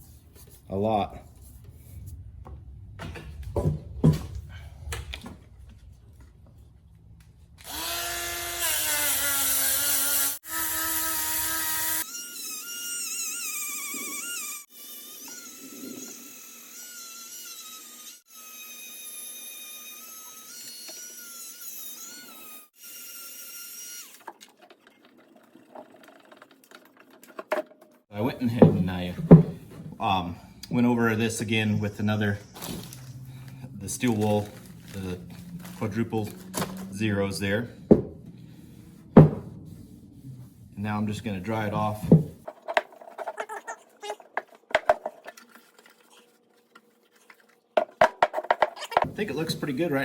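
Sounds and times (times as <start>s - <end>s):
rotary tool grinding metal: 7.6s - 24.4s
knocks: 28.6s - 30.0s, 37.9s - 38.3s, 39.2s - 39.7s, 42.0s - 42.9s.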